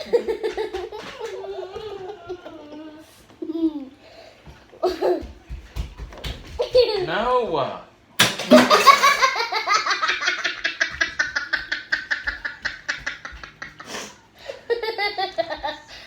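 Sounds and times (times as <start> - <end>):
person laughing hard: 8.5 - 16.0.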